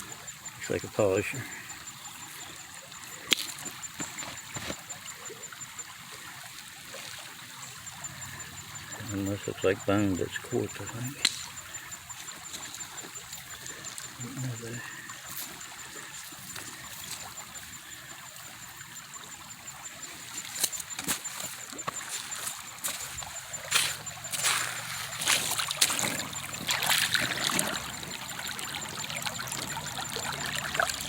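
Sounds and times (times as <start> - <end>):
creek water trickling: 0.0 - 31.0
water splashing: 0.0 - 31.0.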